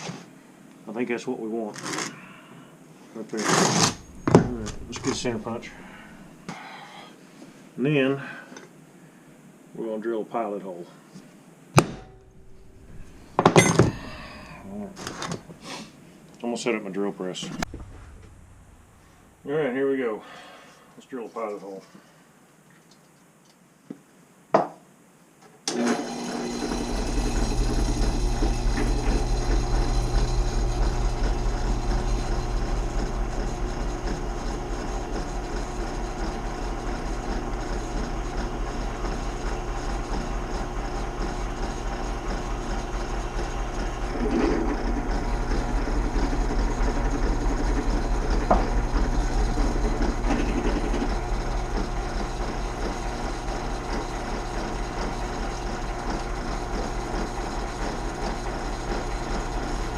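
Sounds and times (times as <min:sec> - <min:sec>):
drill press motor humming: 0:03.6 - 0:06.5, 0:11.9 - 0:15.5, 0:25.7 - 0:59.9.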